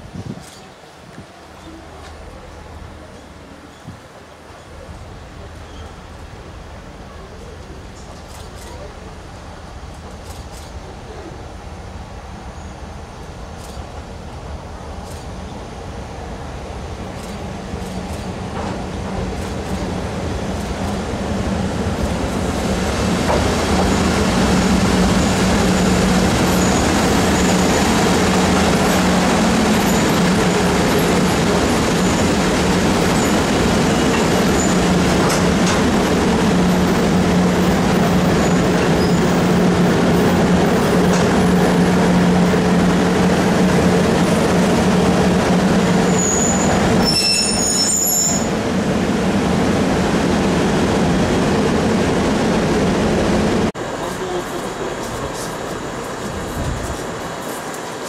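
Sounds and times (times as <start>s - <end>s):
train running on track: 0.0s - 58.0s.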